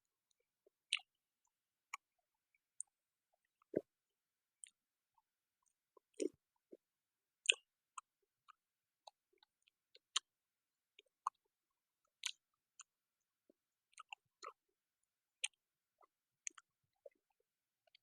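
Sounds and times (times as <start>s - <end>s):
person chewing food: 0.3s - 1.1s, 11.0s - 11.5s, 12.1s - 12.9s, 13.9s - 14.6s, 15.4s - 18.0s.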